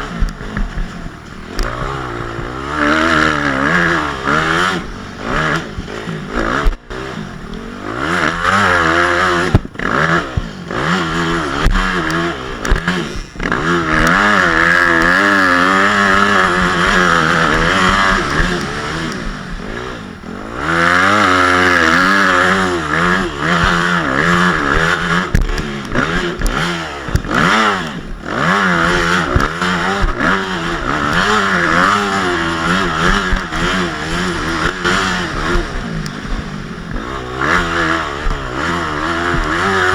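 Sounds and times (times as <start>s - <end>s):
motocross bike engine revving: 0.0s - 39.9s
sharp knocks and clatter: 8.5s - 19.8s, 20.7s - 39.9s.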